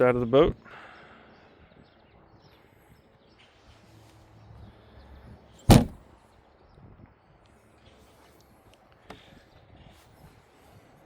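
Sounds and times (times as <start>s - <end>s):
hatch lid banging shut: 5.7s - 6.0s.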